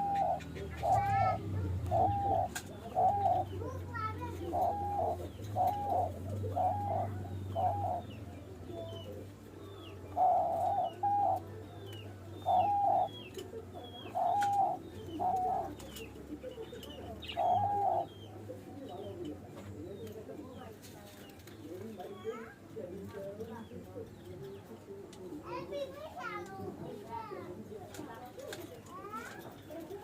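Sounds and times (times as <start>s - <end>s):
doves cooing: 0.0s - 22.7s
small birds chirping: 0.0s - 30.0s.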